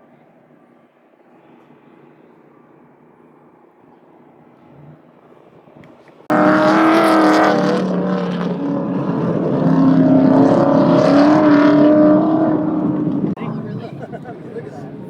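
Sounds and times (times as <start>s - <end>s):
engine running at high revs: 5.8s - 15.0s.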